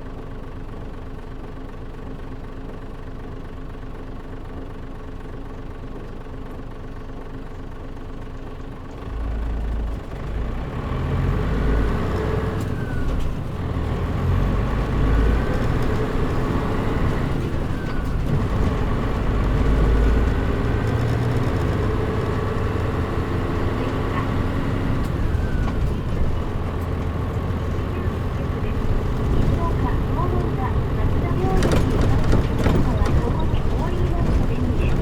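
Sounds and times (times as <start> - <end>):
bus diesel engine running: 0.0 - 35.0.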